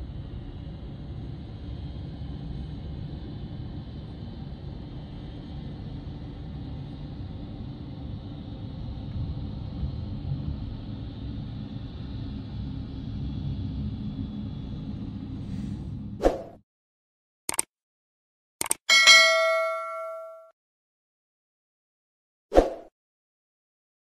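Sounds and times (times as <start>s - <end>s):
jet airliner engines rumbling: 0.0s - 16.2s.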